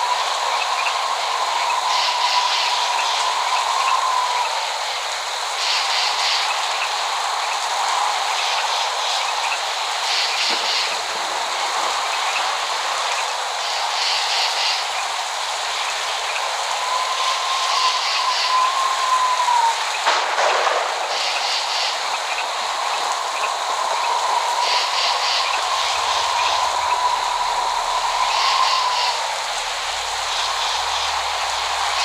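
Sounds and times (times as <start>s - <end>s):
steady rain: 0.0s - 32.0s
faint whistling tone: 23.4s - 32.0s.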